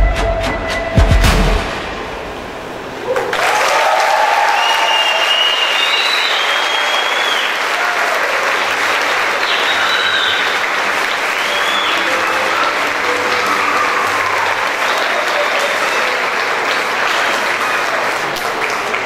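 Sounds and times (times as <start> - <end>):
high cheering voices: 2.9 - 19.0
audience applause: 3.0 - 19.0.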